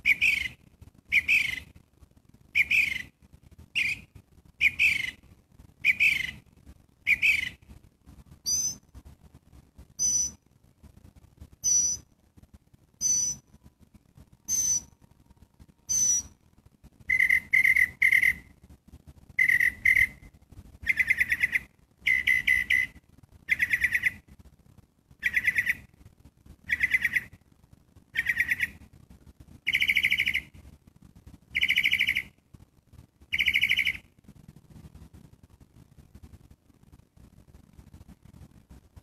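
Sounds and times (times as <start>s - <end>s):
bird harsh buzzy call: 0.0s - 1.7s, 2.6s - 3.2s, 3.8s - 5.2s, 5.8s - 6.4s, 7.0s - 7.6s, 8.4s - 8.8s, 10.0s - 10.4s, 11.6s - 12.0s, 13.0s - 13.5s, 14.5s - 14.9s, 15.9s - 16.4s, 17.1s - 18.5s, 19.4s - 24.2s, 26.7s - 27.4s.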